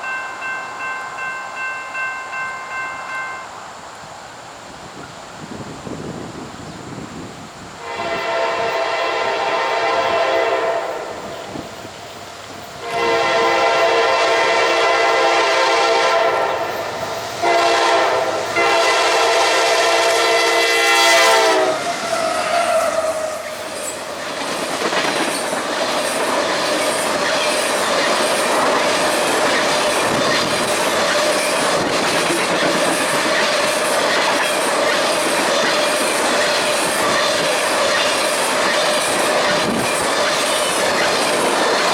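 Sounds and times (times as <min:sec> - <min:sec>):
train wheels rumbling on rails: 0:04.9 - 0:41.9
train horn blasts: 0:07.8 - 0:11.8, 0:12.8 - 0:23.5.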